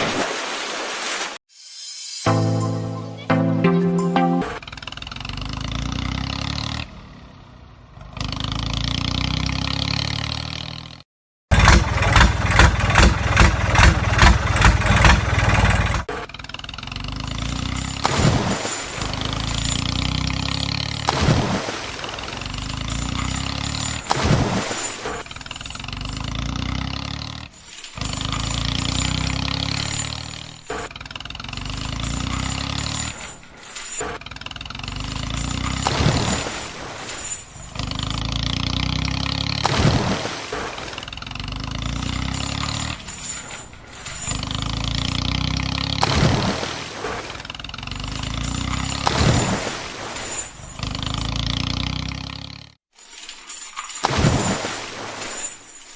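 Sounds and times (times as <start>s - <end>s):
engine running hum: 2.3s - 10.8s, 11.5s - 52.8s
engine chugging: 4.5s - 9.4s, 11.5s - 21.1s, 25.2s - 36.4s, 40.7s - 46.0s.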